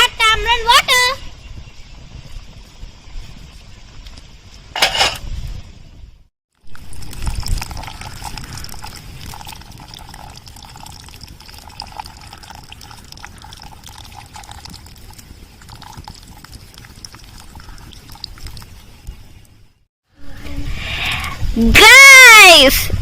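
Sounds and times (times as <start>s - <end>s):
gravy bubbling in a pot: 6.5s - 19.6s.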